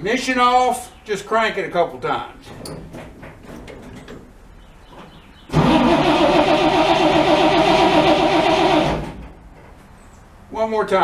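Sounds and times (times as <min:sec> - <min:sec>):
starter motor cranking engine: 0:05.5 - 0:09.3.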